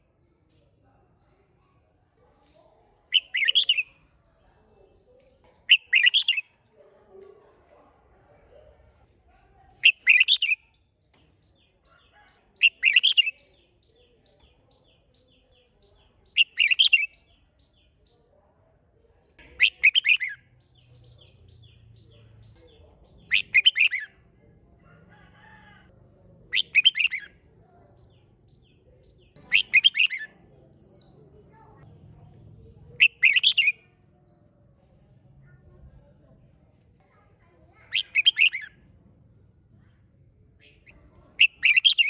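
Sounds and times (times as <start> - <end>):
faint bird chirps: 1.6 - 6.6, 9.8 - 10.8, 28.0 - 34.6, 37.4 - 38.9, 40.6 - 42.0
bulbul singing: 2.9 - 4.2, 5.6 - 6.6, 9.8 - 10.8, 11.5 - 18.2, 19.1 - 24.3, 26.5 - 27.4, 28.0 - 31.2, 31.9 - 34.6, 37.8 - 38.9, 40.6 - 42.0.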